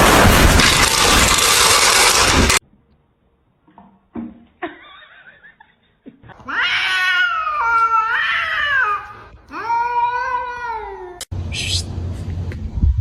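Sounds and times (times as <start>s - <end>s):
cat meowing: 6.4s - 11.2s.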